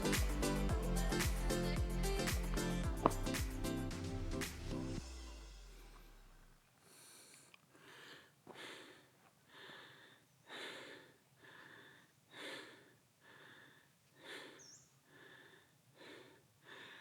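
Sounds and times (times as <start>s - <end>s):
man panting heavily: 6.9s - 17.0s.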